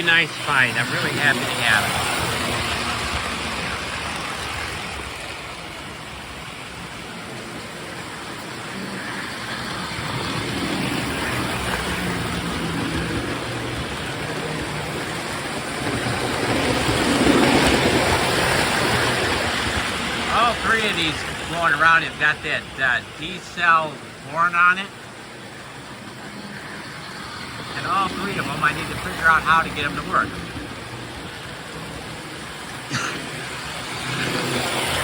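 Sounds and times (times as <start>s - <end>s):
toy train wheels rumbling on track: 0.0s - 24.2s, 24.8s - 35.0s.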